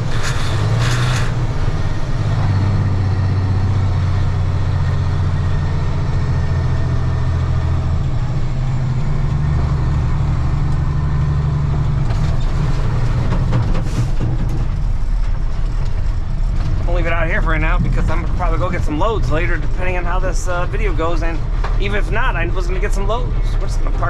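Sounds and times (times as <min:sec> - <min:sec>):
diesel truck engine running: 0:00.0 - 0:24.0
knocks and rattles: 0:10.7 - 0:24.0.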